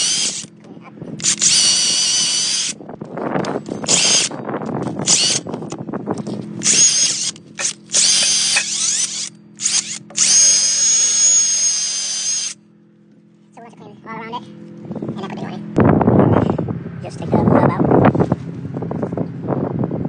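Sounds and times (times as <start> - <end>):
power drill whining: 0.0 - 0.6, 1.2 - 2.8, 3.4 - 12.6
low steady hum: 0.0 - 20.0.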